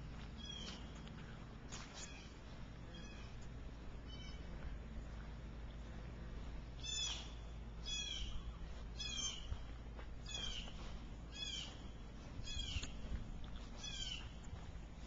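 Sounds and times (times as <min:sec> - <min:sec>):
bird calling: 0:00.4 - 0:00.9, 0:06.8 - 0:09.5, 0:10.3 - 0:11.8, 0:13.8 - 0:14.4.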